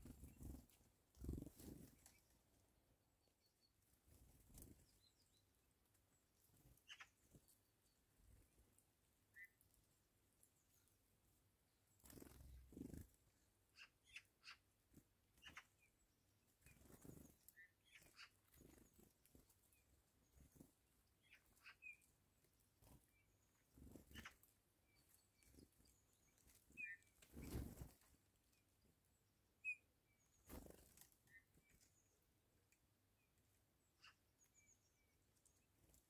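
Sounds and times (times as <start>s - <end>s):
faint bird calls: 6.6s - 7.4s, 16.6s - 19.1s, 21.2s - 22.1s, 33.8s - 35.2s.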